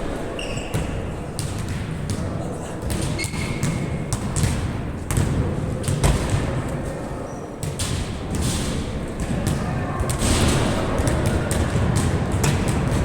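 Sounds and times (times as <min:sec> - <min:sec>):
faint distant voices: 0:08.8 - 0:13.0.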